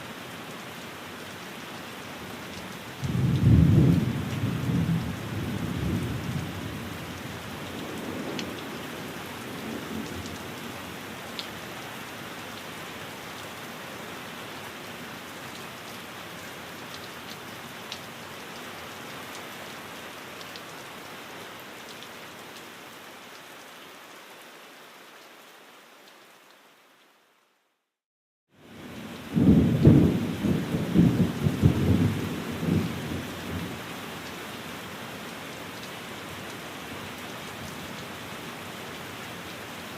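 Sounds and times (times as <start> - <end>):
rain on a window: 0.0 - 27.9, 28.6 - 39.9
thunder rumbling: 3.0 - 6.7, 29.3 - 33.7.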